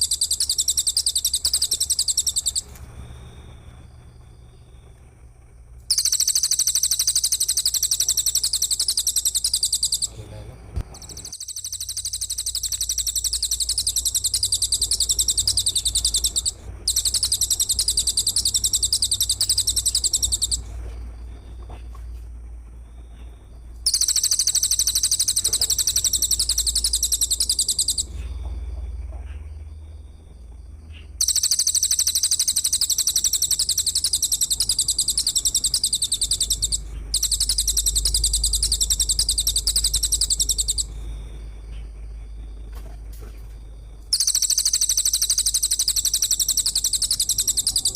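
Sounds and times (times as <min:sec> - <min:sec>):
high rapid buzzing insect trill: 0:00.0 - 0:03.4, 0:05.9 - 0:10.2, 0:10.9 - 0:20.7, 0:23.9 - 0:28.1, 0:31.2 - 0:41.3, 0:44.1 - 0:47.9.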